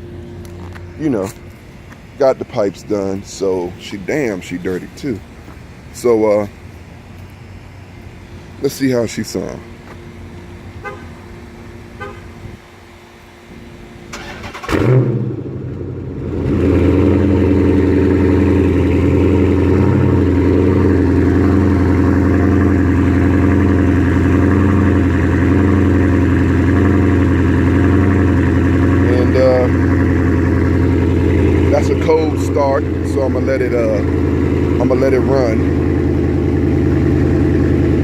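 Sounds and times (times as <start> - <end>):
loud engine idling: 0.0 - 6.7, 14.2 - 38.0
car engine cranking and starting: 14.1 - 38.0.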